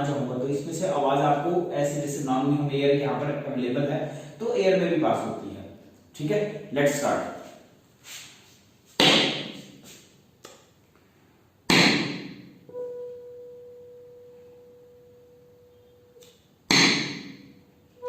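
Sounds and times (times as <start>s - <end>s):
tuning fork ringing pure note: 12.6s - 18.0s
tuning fork striking hard surface: 12.7s - 18.0s.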